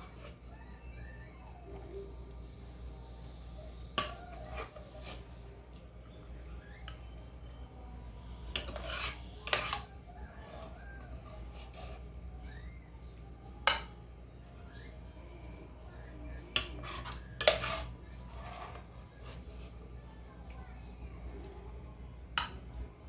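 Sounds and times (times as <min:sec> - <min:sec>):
utensil clinking against dish: 0:08.5 - 0:09.9, 0:16.5 - 0:17.9.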